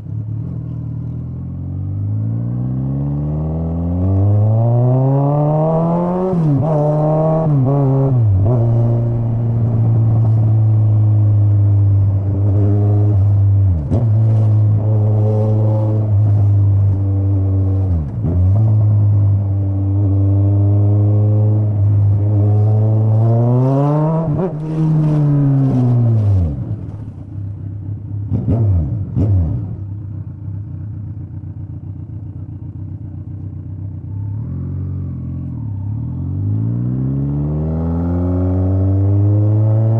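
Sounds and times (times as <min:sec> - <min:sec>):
motorcycle engine shifting gears: 0:00.1 - 0:39.9
motorcycle engine idling: 0:29.8 - 0:36.2.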